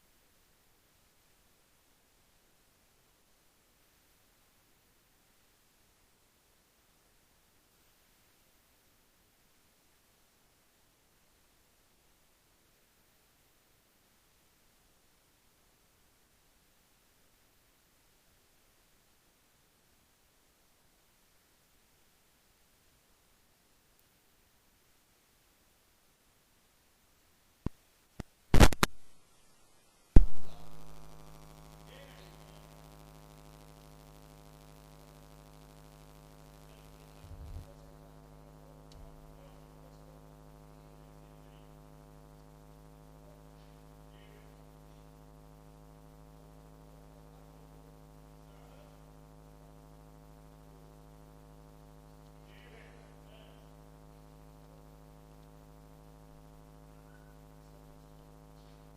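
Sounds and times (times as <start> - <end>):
buzzing mains hum: 0.0 - 58.9
electrical clicks and pops: 27.6 - 29.1, 30.2 - 52.5, 53.1 - 58.9.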